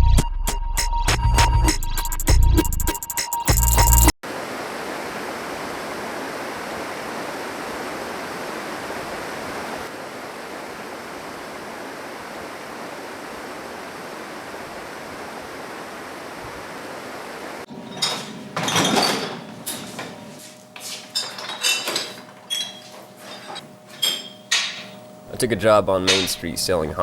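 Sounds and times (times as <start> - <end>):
fast-flowing water rushing: 4.2 - 17.7.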